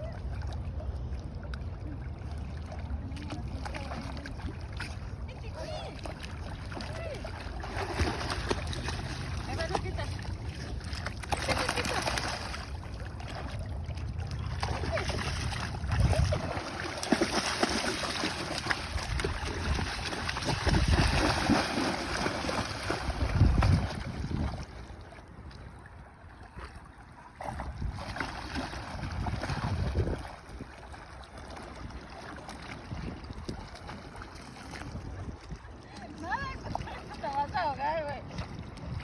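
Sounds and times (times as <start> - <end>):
water splashing and sloshing: 0.0 - 39.0
wind gusting on microphone: 15.5 - 16.8, 18.8 - 24.8, 28.8 - 30.7.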